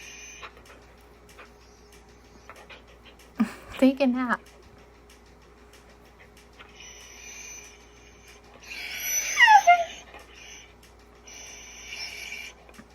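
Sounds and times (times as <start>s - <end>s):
dog whining: 0.0s - 0.8s, 6.6s - 12.9s.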